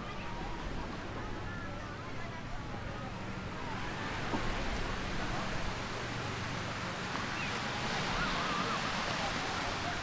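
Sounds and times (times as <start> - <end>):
faint distant voices: 0.0 - 10.0
surf on a sandy beach: 3.3 - 10.0.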